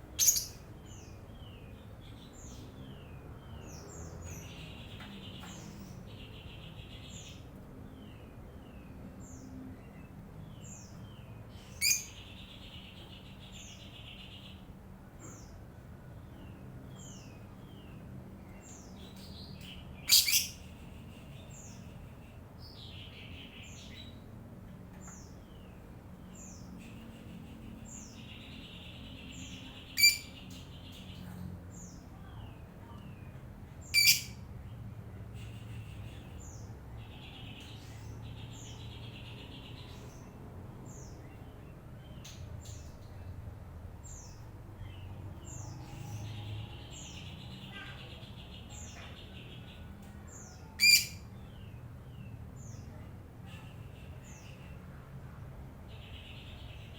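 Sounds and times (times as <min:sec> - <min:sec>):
lovebirds chirping: 0:00.0 - 0:24.3, 0:24.9 - 0:34.5, 0:44.0 - 0:51.8
loud shrill bird calls: 0:00.2 - 0:00.6, 0:11.8 - 0:12.2, 0:20.0 - 0:20.6, 0:30.0 - 0:30.3, 0:33.9 - 0:34.4, 0:50.8 - 0:51.3.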